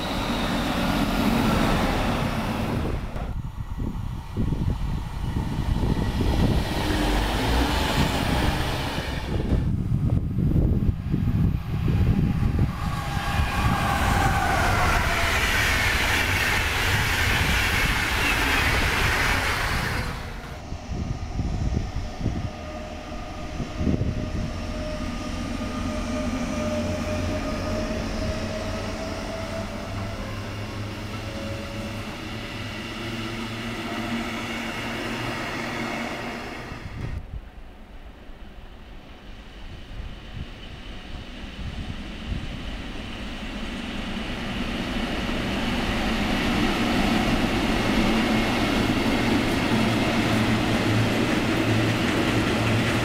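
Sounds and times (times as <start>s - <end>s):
train passing with wheel clatter: 0.0s - 53.0s
whining tones: 11.2s - 37.1s.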